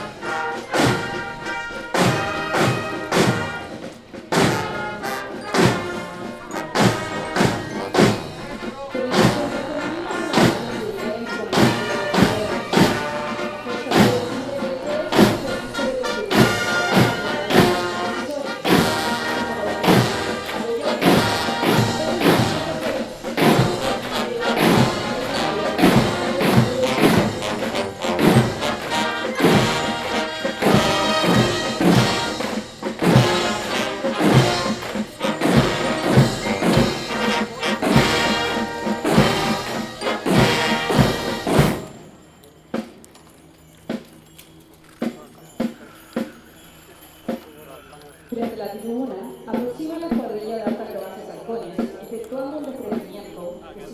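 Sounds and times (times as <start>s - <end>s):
steady drum beat: 0.0s - 42.2s
brass march music: 0.0s - 43.0s.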